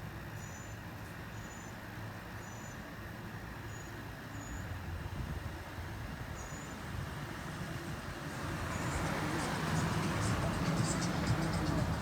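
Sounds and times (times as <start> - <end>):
low vehicle rumble: 8.4 - 12.0.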